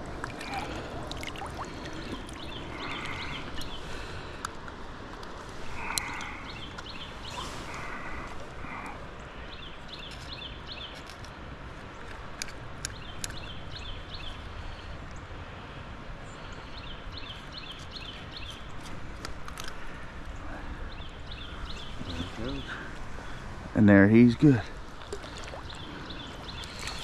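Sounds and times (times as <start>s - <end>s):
songbird chirping: 0.2s - 4.4s, 5.6s - 11.3s, 11.9s - 15.3s, 19.6s - 27.0s.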